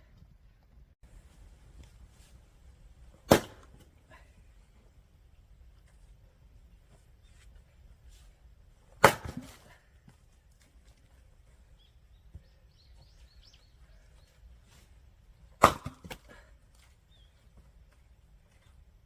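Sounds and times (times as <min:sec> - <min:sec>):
axe striking firewood: 0:03.1 - 0:03.9, 0:08.9 - 0:09.8, 0:15.5 - 0:16.5.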